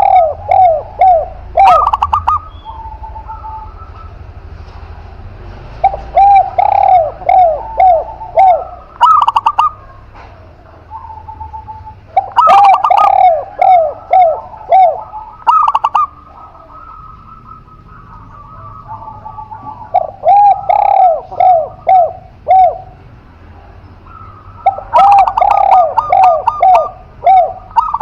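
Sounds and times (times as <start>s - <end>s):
doves cooing: 0.0s - 28.0s.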